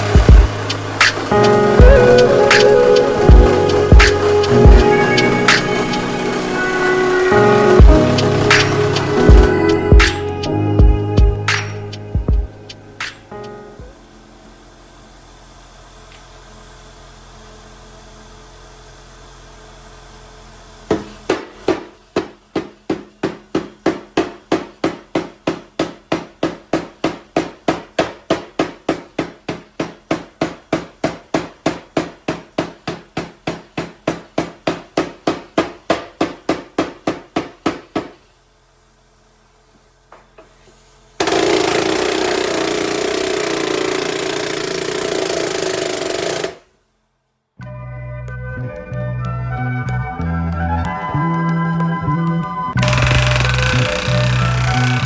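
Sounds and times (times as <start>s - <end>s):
power tool running: 0.0s - 21.5s, 41.0s - 46.8s, 52.8s - 55.0s.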